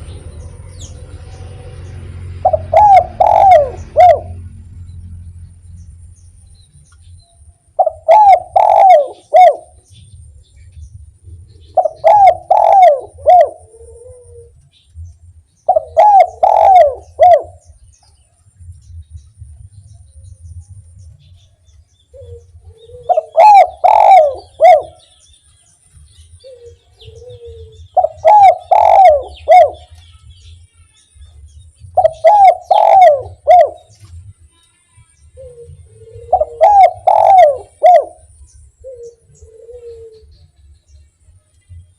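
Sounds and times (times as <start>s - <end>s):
dove cooing: 2.3s - 4.6s, 7.8s - 9.8s, 11.6s - 14.6s, 15.7s - 17.8s, 22.1s - 25.0s, 26.4s - 30.0s, 31.9s - 34.1s, 35.4s - 40.4s.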